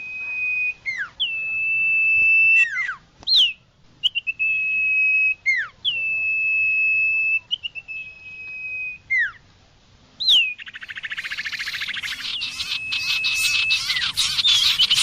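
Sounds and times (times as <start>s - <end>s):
bird whistling song: 0.0s - 9.4s, 10.2s - 15.0s
bird rattling trill: 10.6s - 15.0s.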